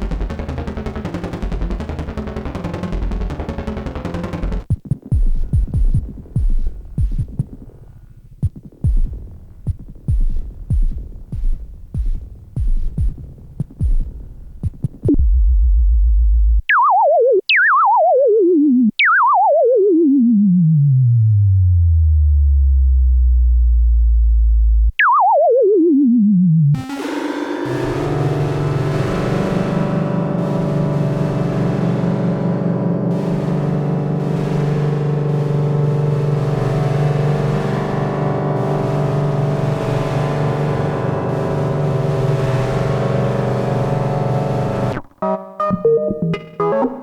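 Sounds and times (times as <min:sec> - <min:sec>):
punchy synthesizer bass notes: 0:15.1 - 0:45.7
falling synthesizer notes: 0:15.1 - 0:47.0
low synthesizer drone: 0:15.1 - 0:47.0
bright synthesizer patch: 0:16.5 - 0:21.6, 0:24.7 - 0:47.0.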